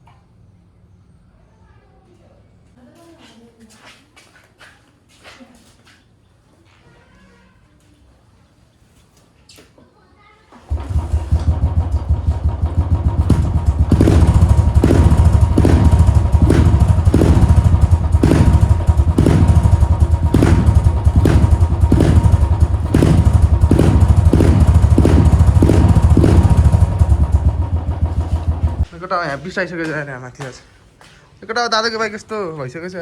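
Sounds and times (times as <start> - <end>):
motorcycle engine thumping: 10.7 - 28.9
sharp knocks: 12.8 - 28.9.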